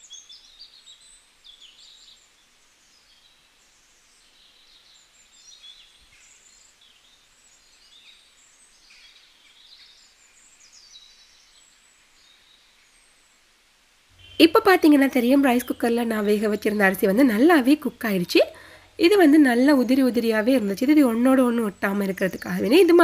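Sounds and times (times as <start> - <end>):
small birds chirping and twittering: 0.0 - 13.6, 14.2 - 23.0.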